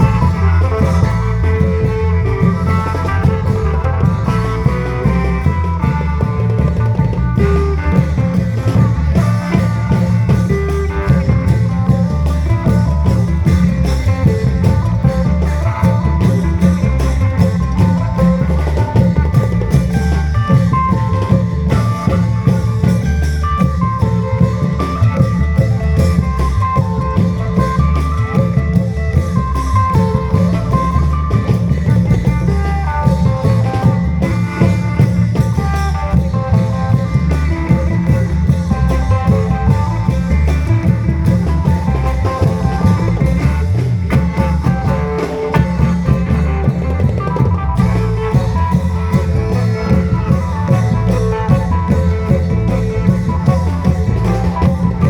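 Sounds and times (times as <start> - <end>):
continuous melody line: 0.0 - 55.0
heavy drumming: 0.0 - 55.0.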